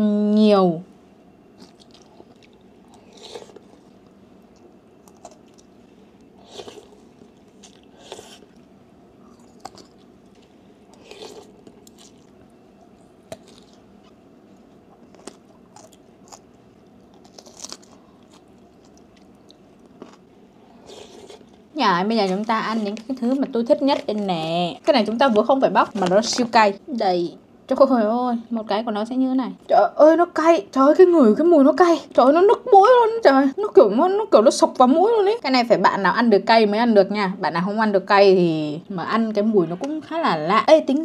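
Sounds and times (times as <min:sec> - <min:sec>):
chewing and crunching bites: 0:01.6 - 0:24.5.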